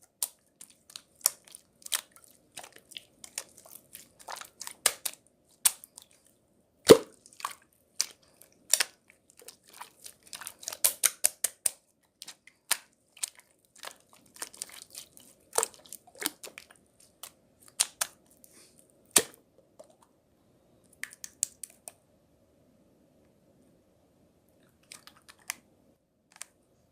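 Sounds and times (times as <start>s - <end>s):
close crunching and crackling: 6.9s - 19.4s.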